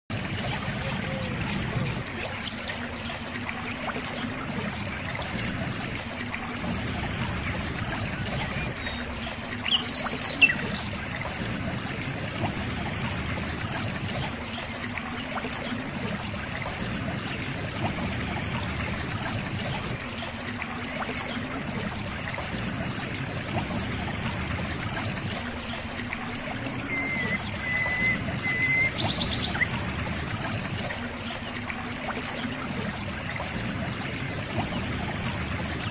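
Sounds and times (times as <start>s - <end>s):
stream trickling and gurgling: 0.1s - 35.9s
bird chirping: 26.9s - 29.7s.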